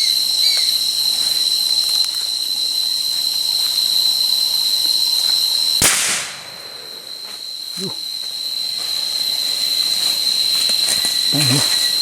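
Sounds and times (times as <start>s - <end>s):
insect chorus: 0.0s - 12.0s
gunshot: 5.8s - 7.4s.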